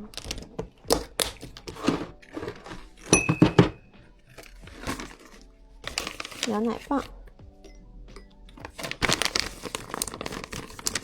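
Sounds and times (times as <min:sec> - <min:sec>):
plastic packets crinkling: 0:00.0 - 0:03.7, 0:04.3 - 0:07.2, 0:08.6 - 0:11.0
containers knocking: 0:00.0 - 0:05.4.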